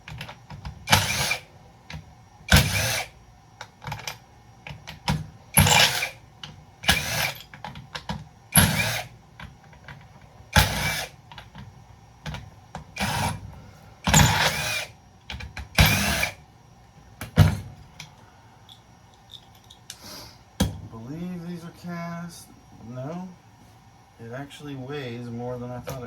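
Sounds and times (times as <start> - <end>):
power drill bursts: 0.8 - 1.5, 2.5 - 3.2, 5.5 - 6.2, 6.8 - 7.5, 8.5 - 9.1, 10.5 - 11.2, 12.9 - 13.4, 14.0 - 15.0, 15.7 - 16.4.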